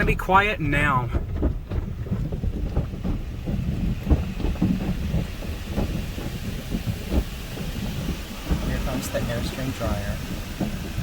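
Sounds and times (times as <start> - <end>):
car wash low rumble: 0.0 - 11.0
irregular knocks: 1.0 - 9.2.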